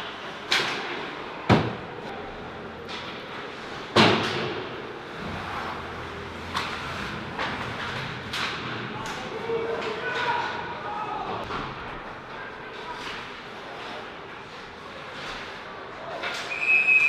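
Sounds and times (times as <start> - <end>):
arena background noise: 0.0 - 17.0
hockey sticks and puck hitting boards: 0.1 - 1.9, 2.7 - 5.8, 6.4 - 10.7.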